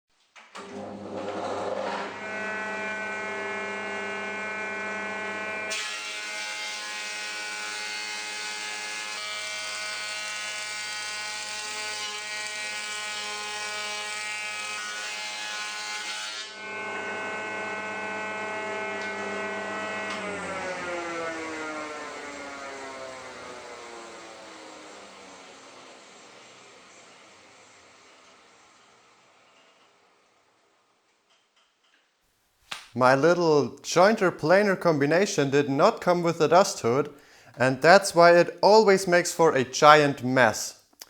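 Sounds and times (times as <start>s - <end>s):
harsh planing of board: 0.6s - 28.7s
planer machine whining: 0.6s - 29.5s.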